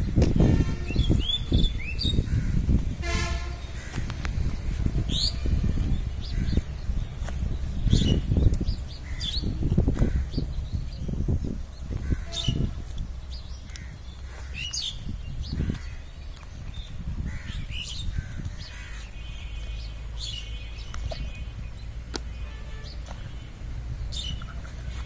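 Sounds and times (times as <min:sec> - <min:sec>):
dull low thumps: 0:00.0 - 0:19.9
birds chirping and calling: 0:00.0 - 0:25.0.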